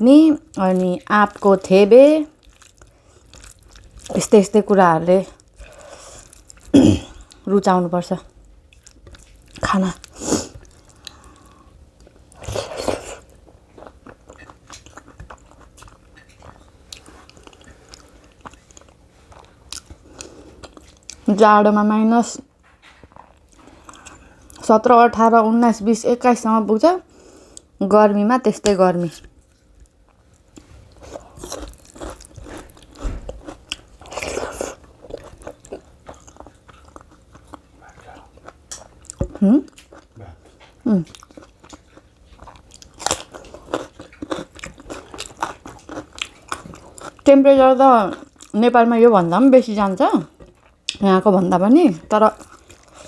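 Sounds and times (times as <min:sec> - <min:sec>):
person chewing food: 0:02.4 - 0:04.2, 0:05.3 - 0:07.5, 0:08.3 - 0:21.3, 0:22.8 - 0:24.6, 0:29.2 - 0:48.6, 0:49.8 - 0:51.0, 0:52.3 - 0:53.0.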